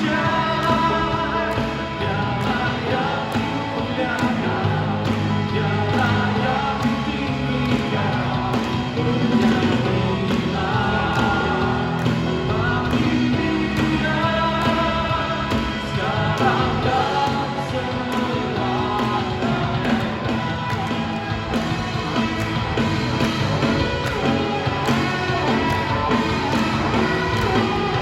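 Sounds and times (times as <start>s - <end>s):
person singing: 0.0s - 21.6s
live band playing praise song: 0.0s - 28.0s.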